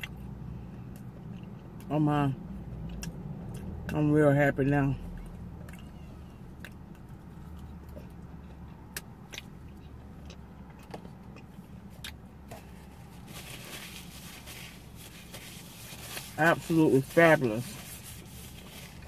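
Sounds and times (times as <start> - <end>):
pretzel being chewed: 0.0 - 1.9, 2.6 - 4.1, 5.0 - 16.3
low hum inside car: 0.0 - 19.0.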